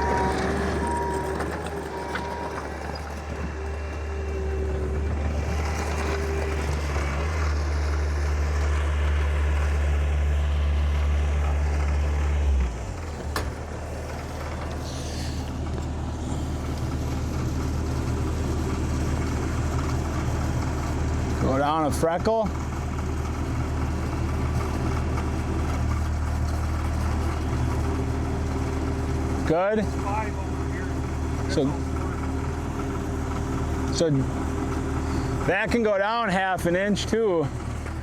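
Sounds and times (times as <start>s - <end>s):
short beeps: 0.0s - 3.0s
heavy machinery engine running: 0.0s - 38.0s.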